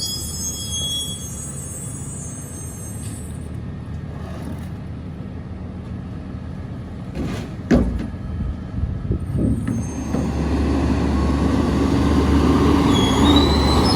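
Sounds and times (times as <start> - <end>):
metal clunks: 7.0 - 8.4.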